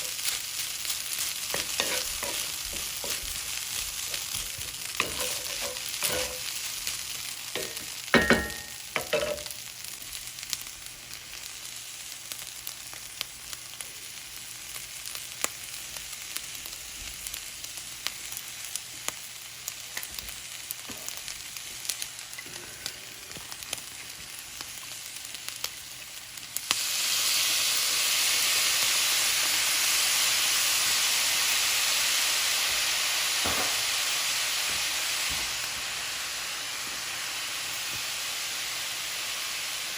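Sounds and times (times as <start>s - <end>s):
rice sizzling in a hot pan: 0.0s - 39.9s.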